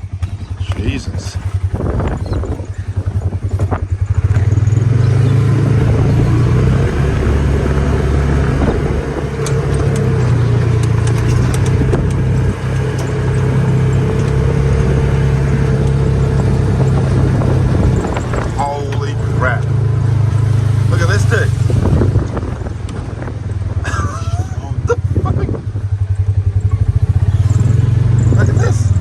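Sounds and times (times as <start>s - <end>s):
vehicle engine running: 0.0s - 29.0s
light clicks and rattles: 9.0s - 16.0s.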